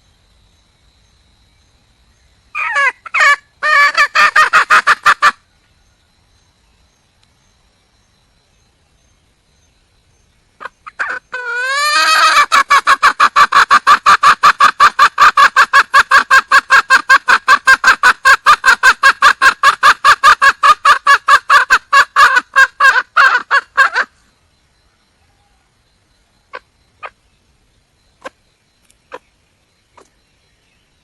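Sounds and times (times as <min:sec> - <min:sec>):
junglefowl hen clucking: 0:02.6 - 0:05.4, 0:10.6 - 0:24.2, 0:26.5 - 0:27.2, 0:28.2 - 0:28.4, 0:29.1 - 0:29.3.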